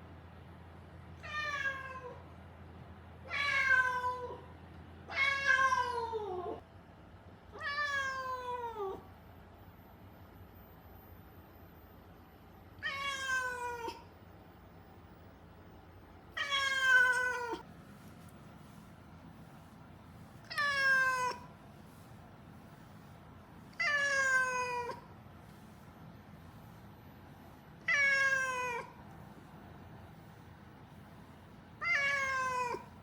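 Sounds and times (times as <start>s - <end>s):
cat meowing loudly: 1.2s - 2.2s, 3.3s - 4.4s, 5.1s - 6.6s, 7.6s - 9.0s, 12.8s - 14.0s, 16.4s - 17.6s, 20.5s - 21.5s, 23.8s - 25.0s, 27.8s - 28.9s, 31.8s - 32.9s.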